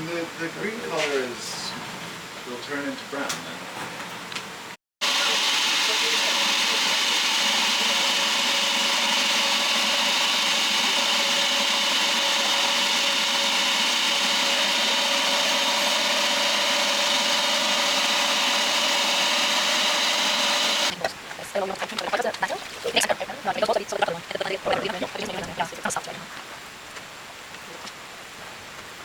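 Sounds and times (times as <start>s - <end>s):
small machine whirring: 5.0s - 21.0s.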